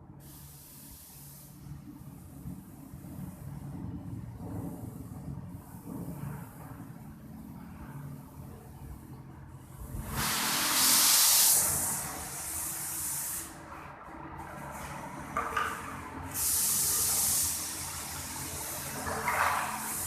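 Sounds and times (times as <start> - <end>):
paint spray gun hissing: 0.2 - 3.7, 9.8 - 13.6, 16.2 - 20.0.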